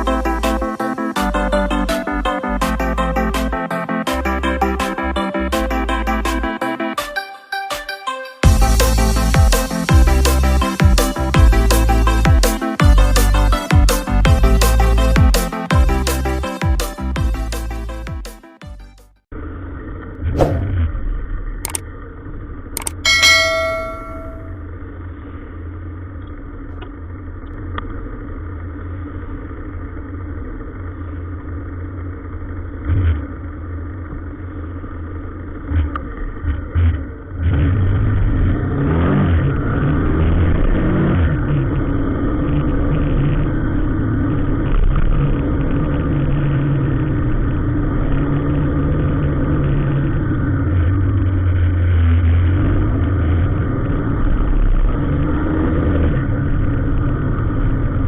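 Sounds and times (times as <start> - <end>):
vehicle engine revving: 27.9 - 58.0.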